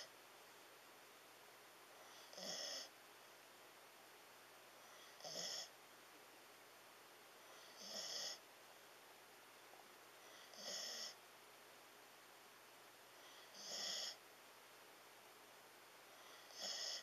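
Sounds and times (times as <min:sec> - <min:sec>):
dog snoring: 0:02.0 - 0:02.9, 0:04.8 - 0:05.7, 0:07.4 - 0:08.4, 0:10.2 - 0:11.2, 0:13.2 - 0:14.2, 0:16.1 - 0:17.0.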